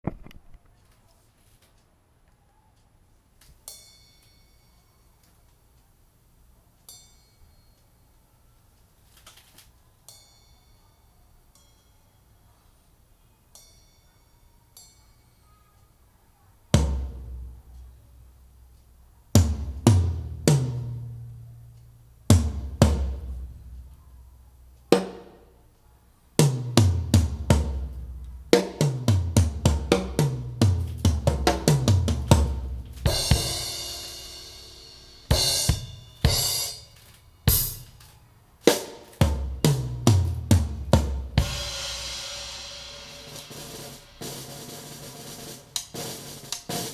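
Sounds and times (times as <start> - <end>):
cymbal crash: 32.3 - 37.9, 41.4 - 45.7.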